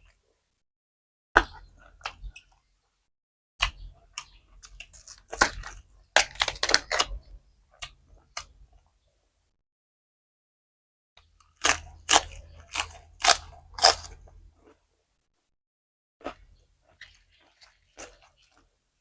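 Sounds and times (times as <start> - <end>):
person chewing crunchy food: 1.4 - 2.5, 3.8 - 8.6, 11.2 - 14.9, 16.2 - 18.8.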